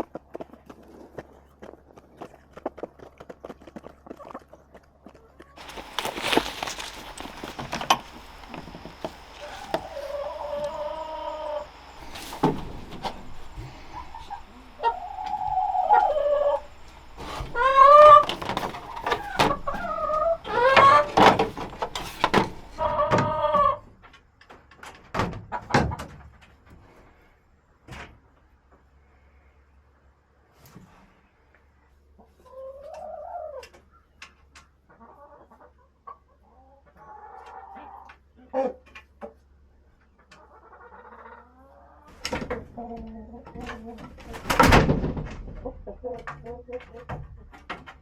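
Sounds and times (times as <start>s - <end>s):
chickens calling: 4.1s - 23.9s, 32.2s - 39.4s, 40.1s - 44.6s.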